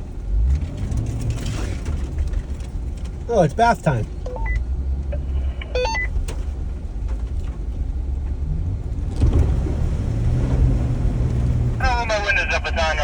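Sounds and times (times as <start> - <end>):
vehicle engine under load: 0.0 - 13.0
electronic beeps: 4.3 - 4.6, 5.2 - 6.1.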